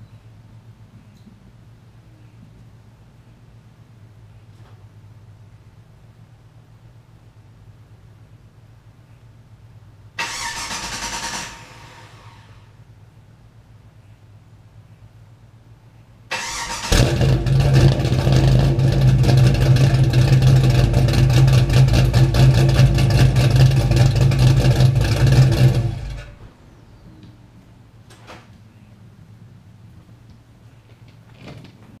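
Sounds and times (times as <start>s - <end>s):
engine idling with choppy lope: 0.0s - 32.0s
engine cranking: 10.2s - 11.9s, 16.3s - 26.5s.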